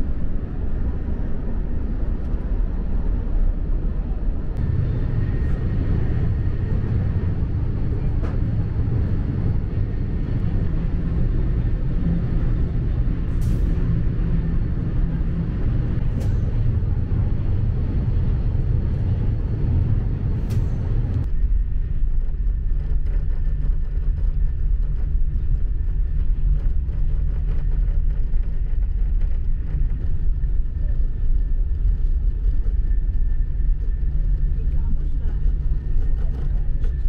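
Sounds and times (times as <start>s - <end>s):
train low rumble: 0.0s - 37.0s.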